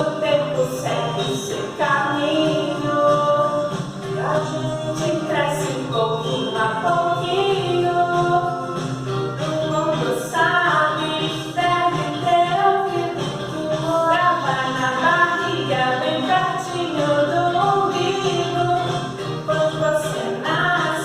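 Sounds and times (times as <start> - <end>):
children's song with music: 0.0 - 21.0.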